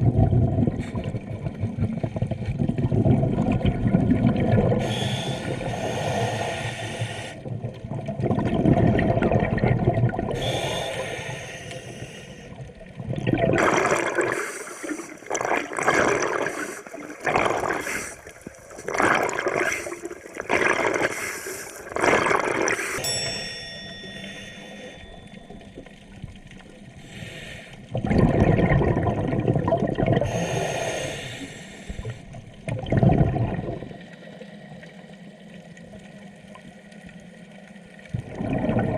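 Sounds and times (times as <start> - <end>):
exhaled bubbles rushing: 0.0 - 6.6, 7.4 - 10.8, 12.5 - 23.0, 27.8 - 30.5, 32.0 - 37.1, 37.8 - 38.9
short bubbling pulses: 13.0 - 14.4, 15.2 - 21.2, 21.9 - 23.2, 27.9 - 30.4, 32.6 - 34.0, 38.1 - 38.9.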